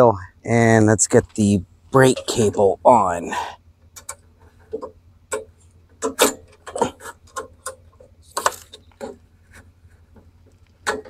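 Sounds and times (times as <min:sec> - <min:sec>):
brake cable clicks and knocks: 0:03.9 - 0:11.0.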